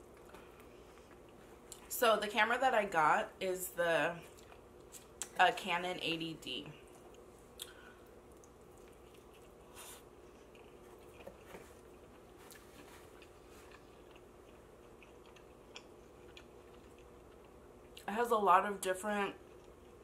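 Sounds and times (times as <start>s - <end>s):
chewing pizza: 0.0s - 1.9s, 4.2s - 5.4s, 6.7s - 18.1s, 19.3s - 20.0s
low room hum: 0.0s - 20.0s.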